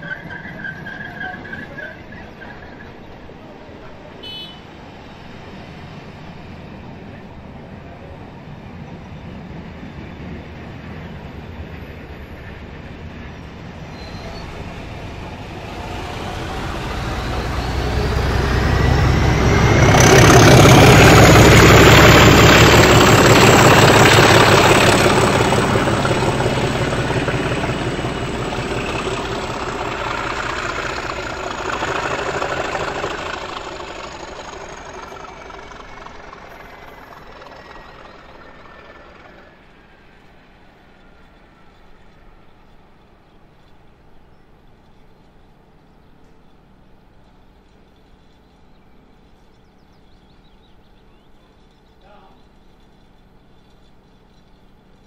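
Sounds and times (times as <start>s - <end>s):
train rumble: 0.0s - 55.0s
wheels clattering over rail joints: 9.5s - 41.1s
high whine: 13.2s - 39.6s.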